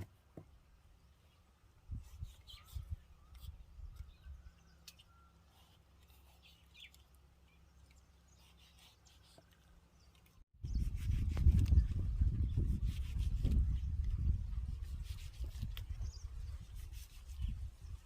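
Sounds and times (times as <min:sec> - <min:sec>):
faint bird chirps: 0:01.0 - 0:10.9.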